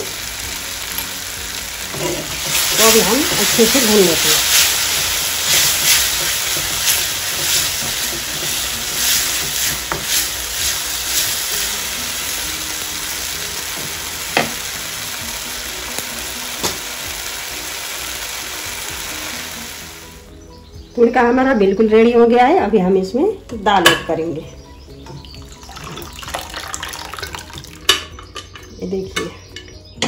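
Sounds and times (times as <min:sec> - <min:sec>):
masala sizzling in a pan: 0:00.0 - 0:20.4, 0:25.2 - 0:28.9
wooden spatula scraping pan: 0:01.9 - 0:11.3.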